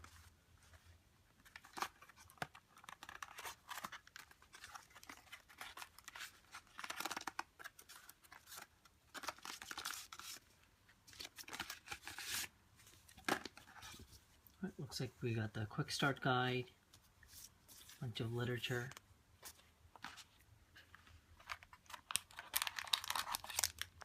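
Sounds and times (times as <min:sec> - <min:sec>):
cardboard and paper rustling: 0:00.0 - 0:14.4, 0:17.0 - 0:24.0.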